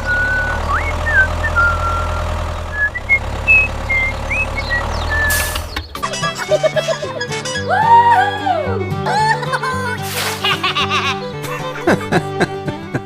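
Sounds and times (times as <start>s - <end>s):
tractor engine running: 0.0s - 7.7s
short high chirps: 2.8s - 5.8s
brief hiss: 5.3s - 5.7s, 10.0s - 10.6s.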